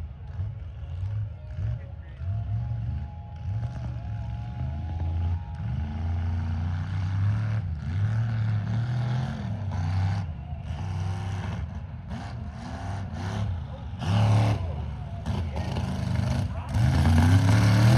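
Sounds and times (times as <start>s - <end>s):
truck engine revving hard: 5.0s - 17.9s.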